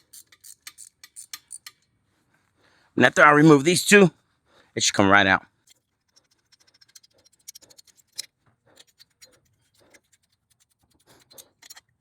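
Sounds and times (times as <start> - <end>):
ratchet wrench clicking: 0.0 - 1.9, 5.6 - 9.3.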